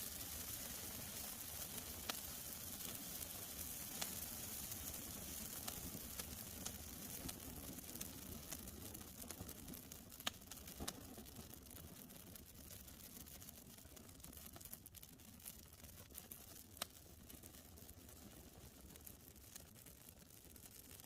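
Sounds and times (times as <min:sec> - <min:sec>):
campfire hissing: 0:00.0 - 0:08.6
fire crackling and popping: 0:00.0 - 0:21.0.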